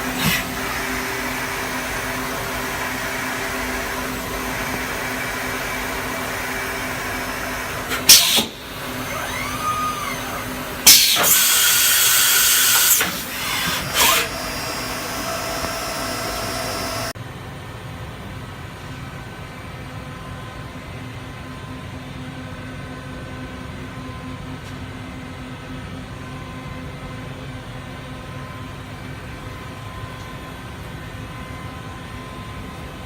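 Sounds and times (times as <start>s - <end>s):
machine hum: 0.0s - 17.2s
machine whine: 0.0s - 17.2s
sharp machine bursts: 8.0s - 17.2s.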